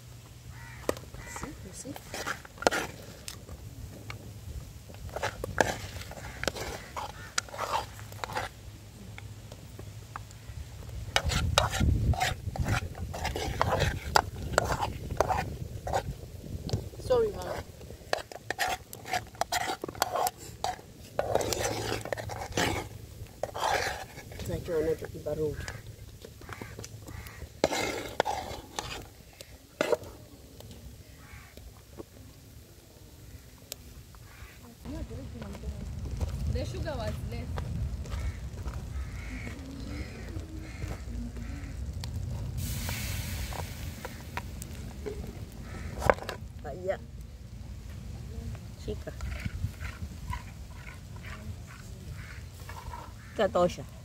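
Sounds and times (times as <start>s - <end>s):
spoon scraping a cooking pot: 1.9s - 3.4s, 5.0s - 8.6s, 11.1s - 30.1s
low rumble: 34.8s - 46.0s.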